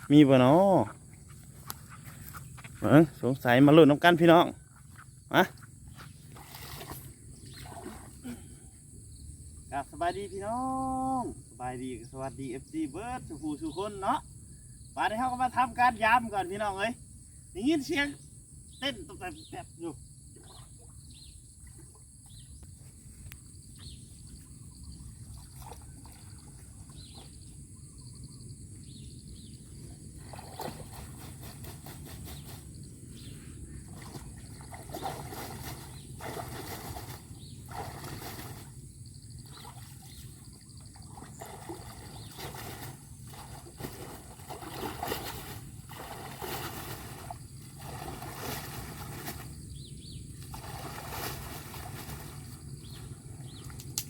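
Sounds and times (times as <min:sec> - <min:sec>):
stream water trickling: 0:04.6 - 0:09.7, 0:20.0 - 0:28.2, 0:33.6 - 0:54.0
water splashes: 0:06.2 - 0:08.4, 0:25.2 - 0:27.3, 0:33.8 - 0:49.6, 0:50.4 - 0:54.0.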